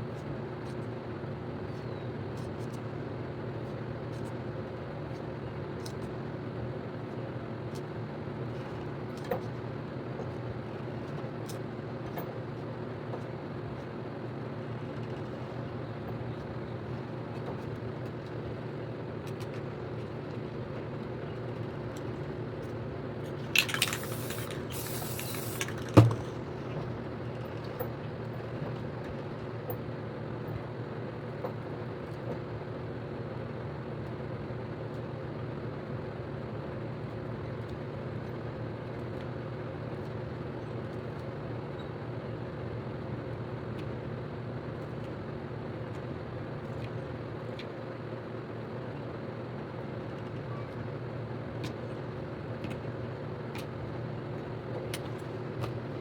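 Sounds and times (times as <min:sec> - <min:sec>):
spray paint can hissing: 0:23.6 - 0:26.3.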